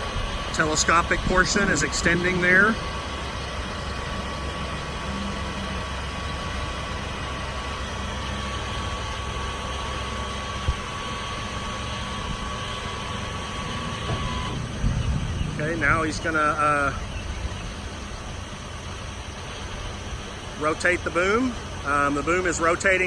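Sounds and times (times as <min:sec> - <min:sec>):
diesel engine idling: 0:00.0 - 0:23.0
hydraulic whine: 0:00.0 - 0:23.0.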